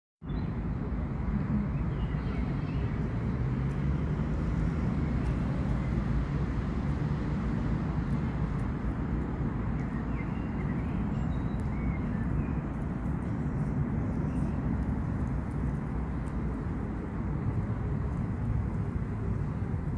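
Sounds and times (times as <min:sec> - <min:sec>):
low rumbling background noise: 0:00.3 - 0:19.9.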